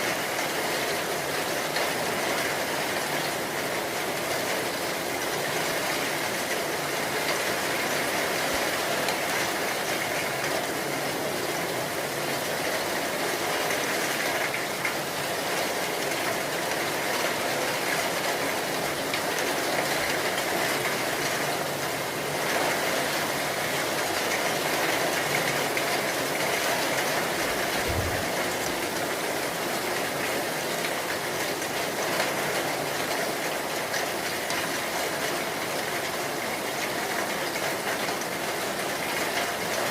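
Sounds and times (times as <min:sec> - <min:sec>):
heavy rain falling: 0:00.0 - 0:39.9
low thud: 0:27.9 - 0:28.3.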